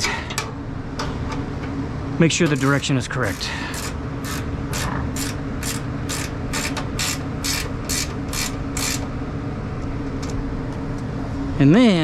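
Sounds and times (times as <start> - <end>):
low machine hum: 0.0 - 12.0
ratchet clicking: 3.7 - 9.1.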